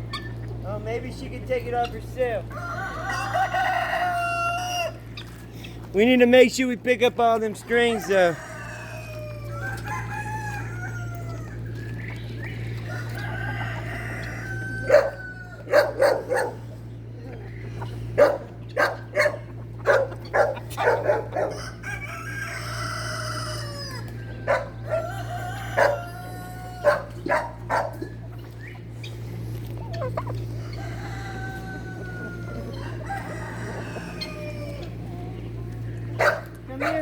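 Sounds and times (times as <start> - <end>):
chickens squawking and clucking: 0.0 - 37.0
rooster crowing: 2.5 - 5.1, 7.8 - 11.7, 12.8 - 16.5, 19.9 - 27.9, 30.5 - 35.3.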